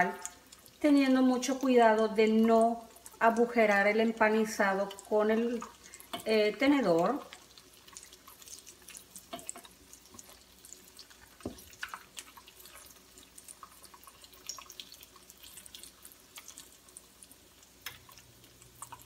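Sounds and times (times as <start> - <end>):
food frying with small pops: 0.0 - 19.0
spatula and fork clicking on pan: 9.2 - 9.8.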